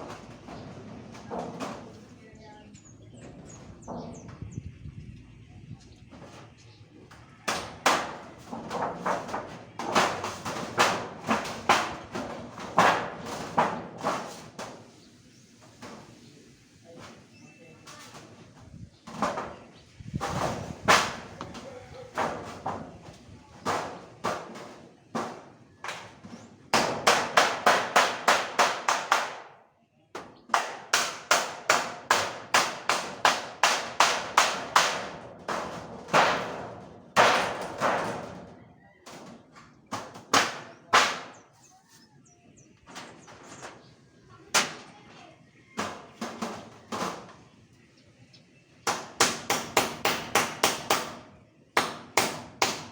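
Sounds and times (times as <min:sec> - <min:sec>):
hand hammer blows: 0:48.9 - 0:51.2.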